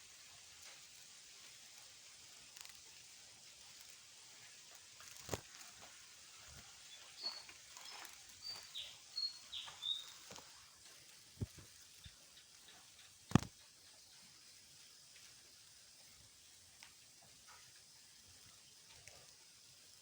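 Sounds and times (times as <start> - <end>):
faint outdoor background noise: 0.0 - 20.0
small bird chirping: 6.3 - 15.0.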